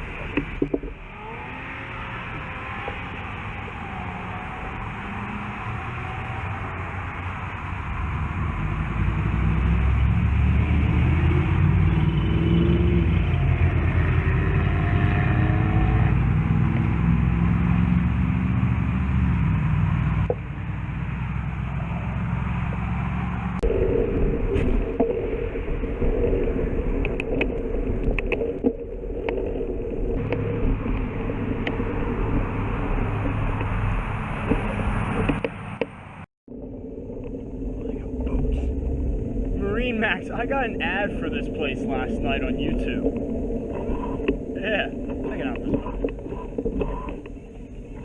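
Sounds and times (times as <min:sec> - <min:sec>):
vehicle engine running: 0:28.6 - 0:48.0.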